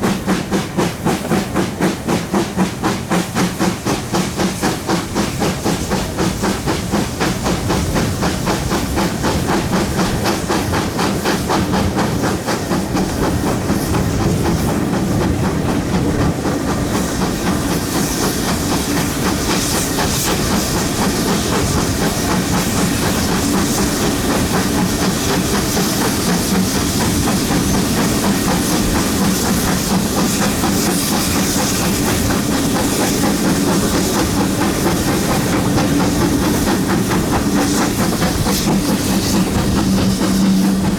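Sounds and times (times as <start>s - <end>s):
steam hiss: 0.0s - 40.9s
steam locomotive exhaust beats: 0.0s - 40.9s
train wheels clattering on rails: 0.0s - 40.9s.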